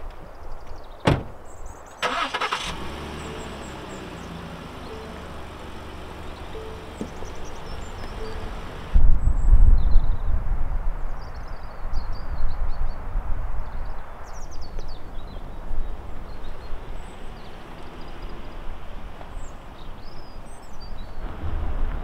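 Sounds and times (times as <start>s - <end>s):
small birds chirping: 0.0s - 10.3s, 11.1s - 21.6s
wind buffeting microphone: 5.4s - 22.0s.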